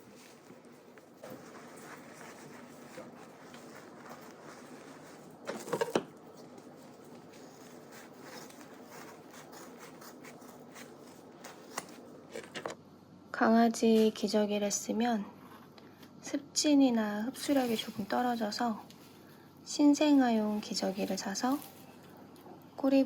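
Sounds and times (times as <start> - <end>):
rubbing and scratching handling noises: 0.0 - 12.8, 17.3 - 22.2.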